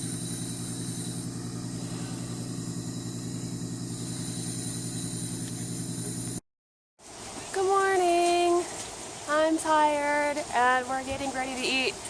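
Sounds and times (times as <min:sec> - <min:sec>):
engine idling: 0:00.0 - 0:06.4.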